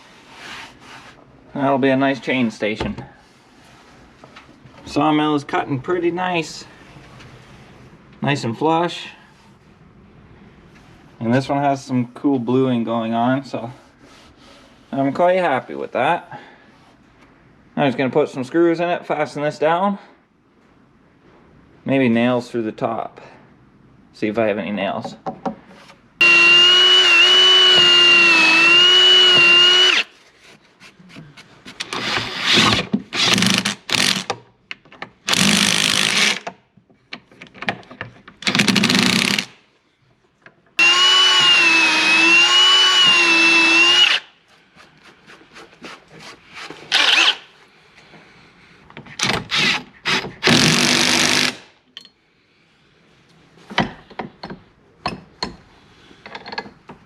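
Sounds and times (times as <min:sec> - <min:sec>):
power drill driving screws: 0:26.2 - 0:30.1, 0:31.8 - 0:34.3, 0:35.3 - 0:36.4, 0:38.5 - 0:39.5, 0:40.8 - 0:44.2, 0:46.9 - 0:47.4, 0:49.5 - 0:51.6.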